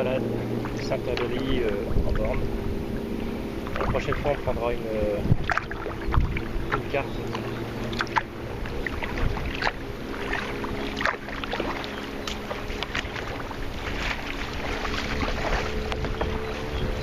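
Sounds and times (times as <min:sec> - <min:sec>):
faint low drone: 0:00.0 - 0:17.0
wind on microphone: 0:00.5 - 0:17.0
water splashes and drips: 0:03.6 - 0:04.5, 0:05.3 - 0:16.2.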